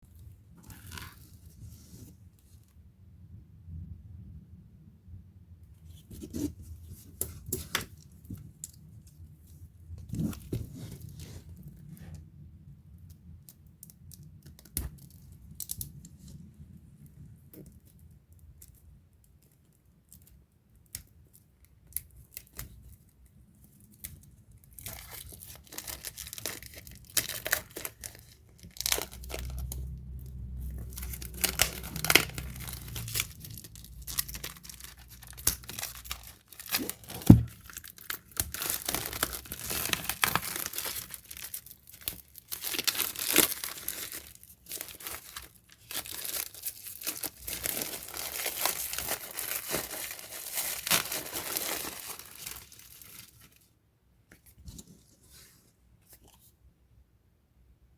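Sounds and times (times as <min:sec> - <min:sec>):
packaging crinkling and ripping: 0:00.6 - 0:01.5, 0:23.8 - 0:53.7.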